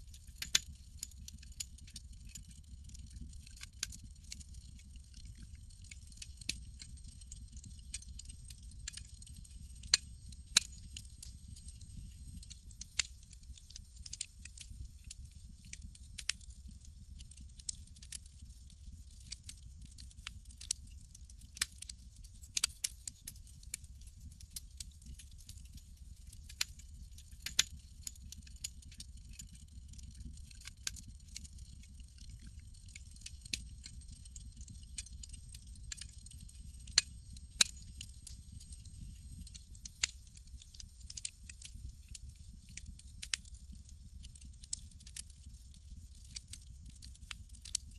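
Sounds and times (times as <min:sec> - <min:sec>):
campfire crackling and popping: 0:00.4 - 0:47.8.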